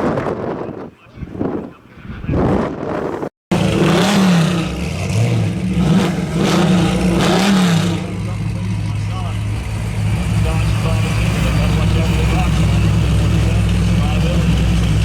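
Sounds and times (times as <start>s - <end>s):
wind buffeting microphone: 0.0s - 3.3s
race vehicle engines revving: 3.5s - 15.0s.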